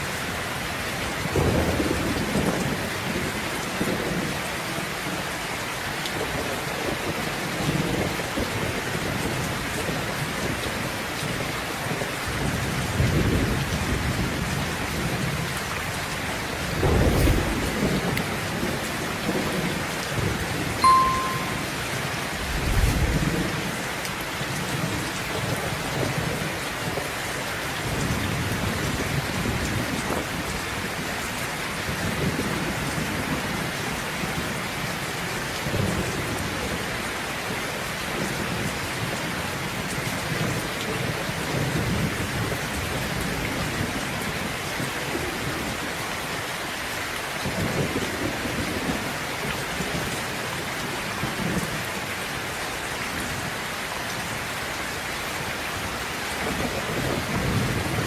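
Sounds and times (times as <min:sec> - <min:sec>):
steady rain: 0:00.0 - 0:58.0
low thunder rumbling: 0:15.0 - 0:20.4, 0:22.3 - 0:23.8.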